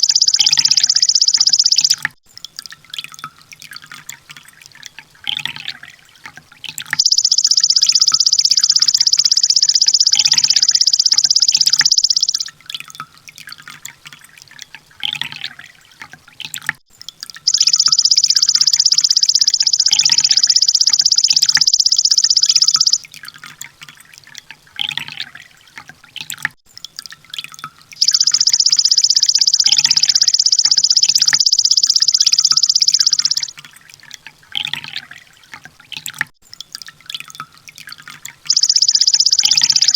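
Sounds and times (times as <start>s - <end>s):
short bird chirps: 0.0s - 2.1s, 7.0s - 12.5s, 17.5s - 23.0s, 28.0s - 33.6s, 38.5s - 39.9s
sunbird fast high trills: 7.0s - 12.5s.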